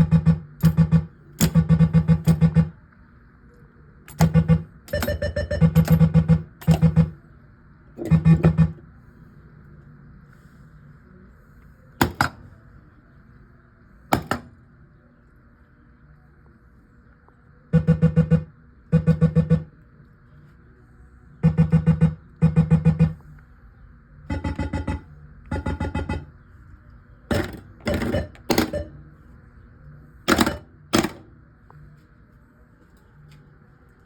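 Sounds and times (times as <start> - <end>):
pinball machine pulsing electronic tones: 0.0 - 2.8, 4.1 - 7.2, 8.0 - 8.8, 17.8 - 19.7, 21.4 - 23.2, 24.3 - 26.4, 27.3 - 29.1.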